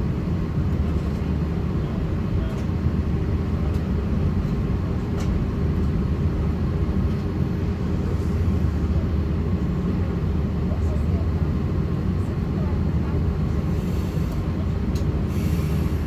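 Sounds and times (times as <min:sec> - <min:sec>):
airplane cabin engine rumble: 0:00.0 - 0:16.0.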